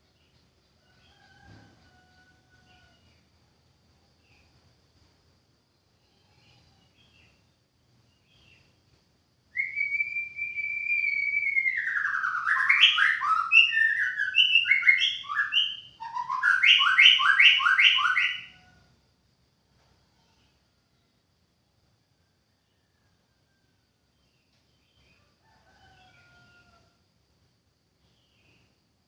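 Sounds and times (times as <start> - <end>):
bird singing whistled phrases: 9.6 - 18.6.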